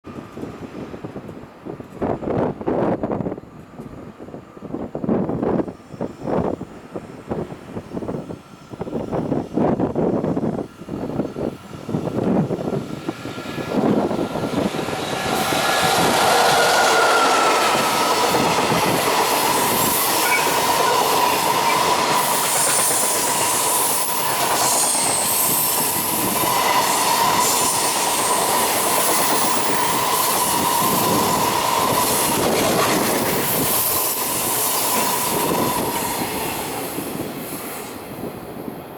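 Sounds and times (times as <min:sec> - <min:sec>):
high squeal: 0:14.4 - 0:32.6.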